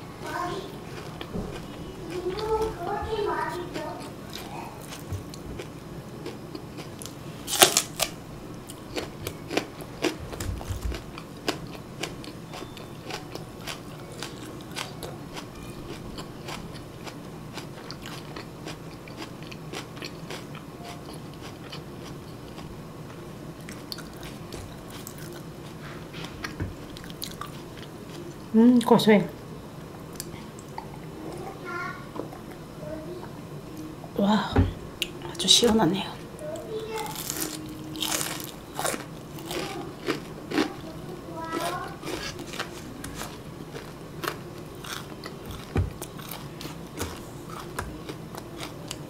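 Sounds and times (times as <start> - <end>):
chewing with small crunches: 0.2 - 8.1, 8.7 - 28.5, 36.6 - 49.0.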